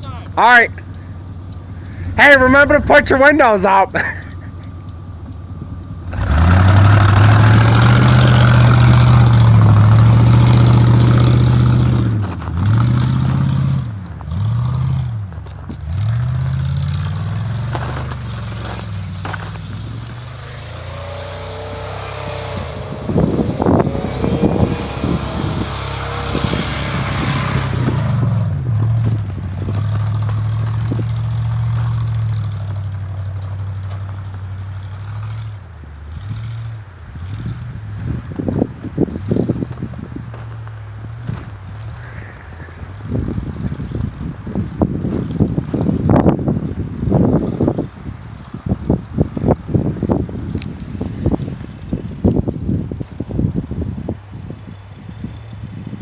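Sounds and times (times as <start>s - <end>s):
truck engine revving: 0.0s - 48.0s
crackling and scraping: 7.2s - 21.8s, 28.2s - 35.4s, 38.0s - 46.0s, 50.6s - 53.6s.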